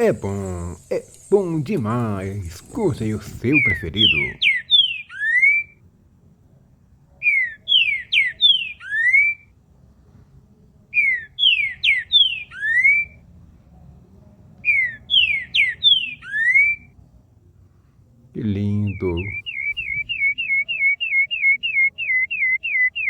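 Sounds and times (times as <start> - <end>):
songbird whistling phrase: 3.4 - 5.8, 7.2 - 9.5, 10.9 - 13.2, 14.6 - 16.9, 18.6 - 23.0.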